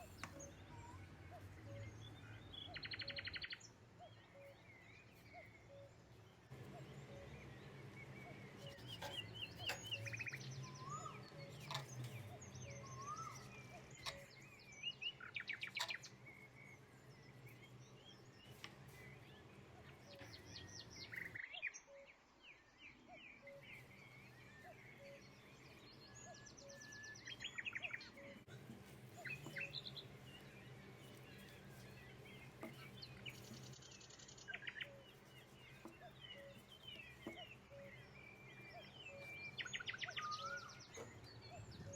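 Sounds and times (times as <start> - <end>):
low steady hum: 0.0 - 21.5, 22.4 - 41.9
birds chirping and trilling: 0.0 - 41.9.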